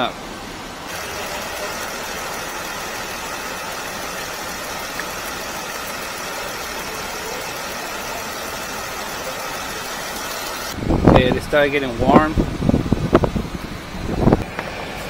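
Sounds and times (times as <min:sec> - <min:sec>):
heater blower air rush: 0:00.0 - 0:15.0
car engine idling: 0:00.7 - 0:11.2.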